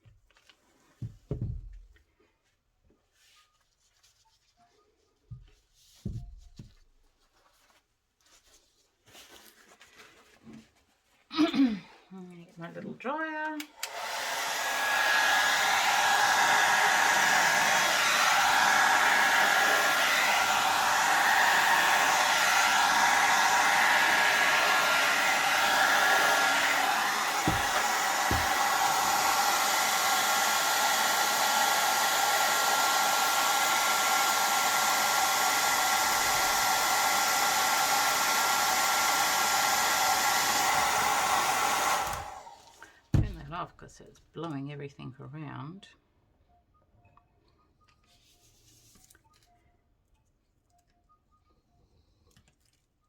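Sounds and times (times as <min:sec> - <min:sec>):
hair dryer running: 0:13.6 - 0:43.4.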